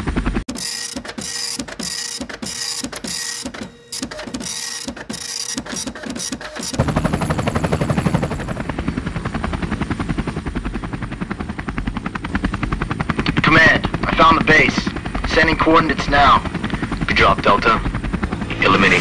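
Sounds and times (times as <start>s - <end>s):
helicopter rotor chopping: 0.0s - 19.0s
mechanical clattering bursts: 0.5s - 6.9s.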